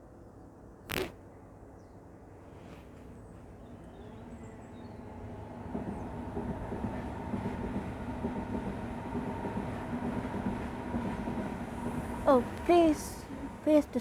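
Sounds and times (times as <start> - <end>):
train passing: 3.2 - 14.0.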